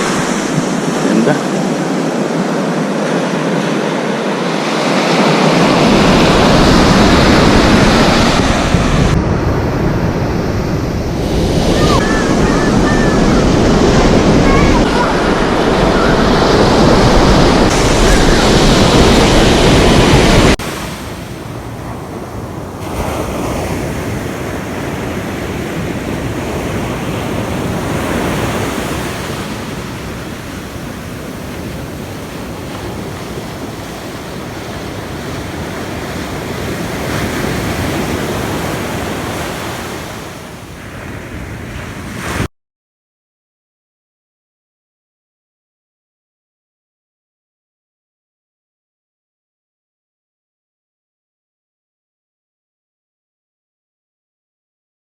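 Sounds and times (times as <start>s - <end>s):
waves breaking on beach: 0.0s - 42.5s
wind buffeting microphone: 5.3s - 42.5s.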